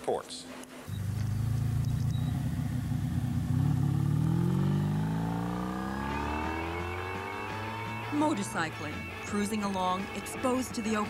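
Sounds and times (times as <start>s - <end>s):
motorcycle engine accelerating: 0.9s - 9.1s
low engine drone: 0.9s - 9.2s.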